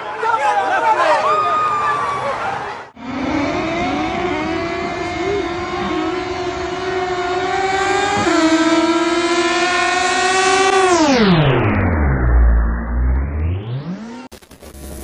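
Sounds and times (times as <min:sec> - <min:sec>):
engines revving at full throttle: 0:02.9 - 0:14.3.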